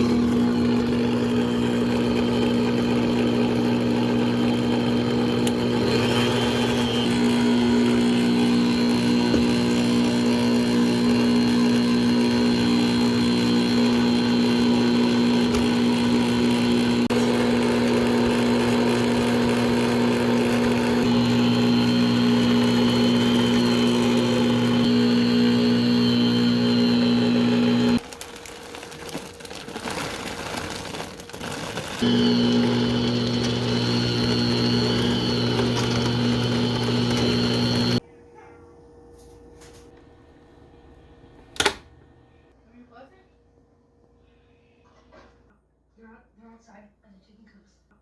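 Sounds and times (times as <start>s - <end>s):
electric mixer motor humming: 0.0s - 38.0s.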